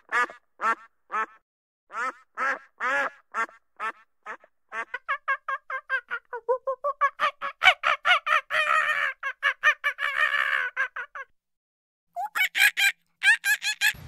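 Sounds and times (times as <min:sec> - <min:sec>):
bird calling rapid notes: 0:12.2 - 0:14.0.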